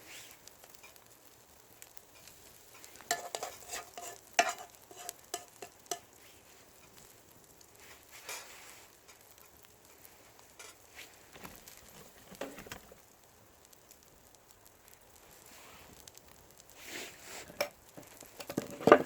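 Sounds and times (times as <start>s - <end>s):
faint frying sizzle: 0.0s - 19.0s
metal cookware clinking and scraping: 2.8s - 6.1s, 10.6s - 10.8s.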